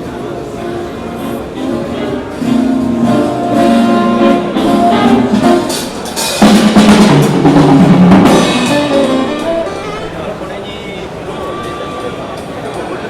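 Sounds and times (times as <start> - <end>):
music with drums and brass: 1.6 - 10.2.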